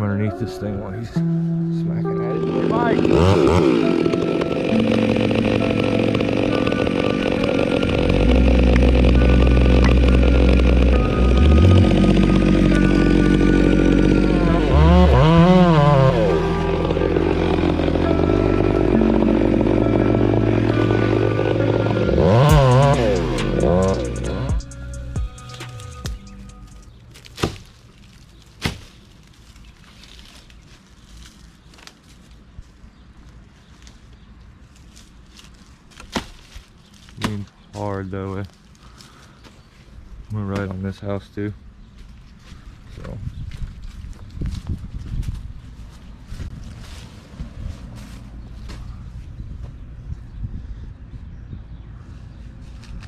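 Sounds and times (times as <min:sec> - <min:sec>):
deep low hum: 0:01.2 - 0:27.0
chainsaw running: 0:02.0 - 0:26.8.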